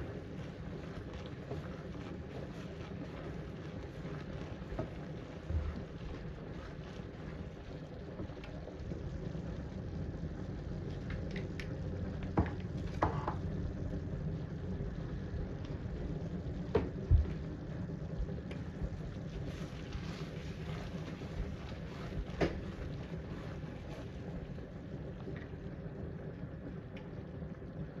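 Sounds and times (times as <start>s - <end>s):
stovetop cooking rushing noise: 0.0s - 25.8s.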